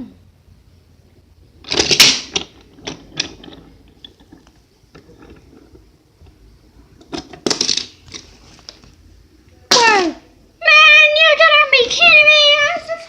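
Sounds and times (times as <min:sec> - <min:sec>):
toy trains clattering: 0:01.6 - 0:06.4, 0:07.0 - 0:08.3.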